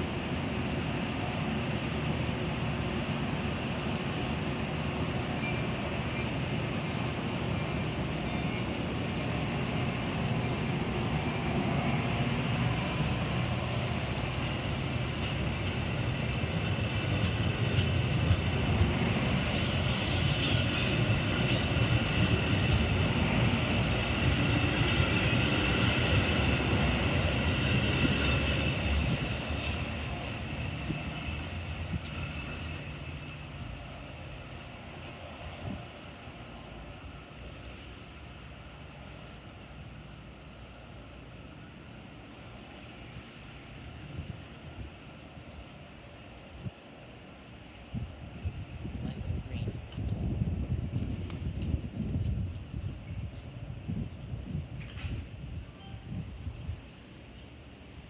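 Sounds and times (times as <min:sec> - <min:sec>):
train rumbling on rails: 0:00.0 - 0:58.0
short hiss: 0:19.4 - 0:21.0
wheel squeal: 0:19.4 - 0:21.1.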